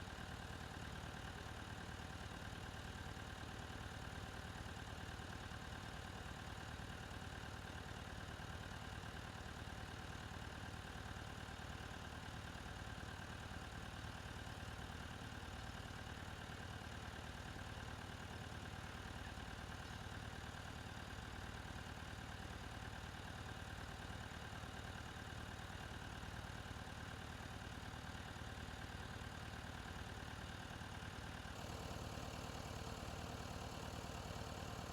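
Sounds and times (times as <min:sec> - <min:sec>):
tractor engine running: 0:31.5 - 0:34.9.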